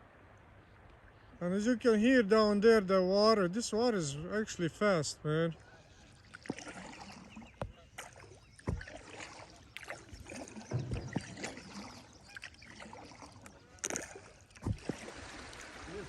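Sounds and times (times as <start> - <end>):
water splashes: 3.2 - 16.0
river water rushing: 8.0 - 16.0
low thumps: 10.2 - 12.4.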